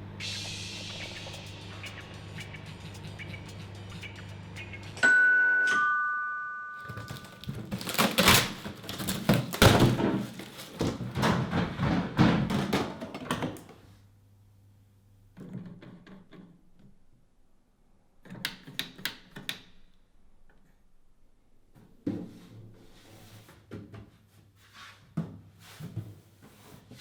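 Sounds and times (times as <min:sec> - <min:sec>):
knocks and thumps: 0:06.9 - 0:13.6.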